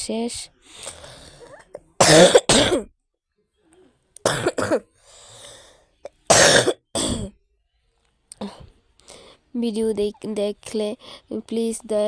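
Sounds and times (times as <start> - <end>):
woman coughing: 1.5 - 2.9, 4.3 - 4.8, 6.1 - 7.4.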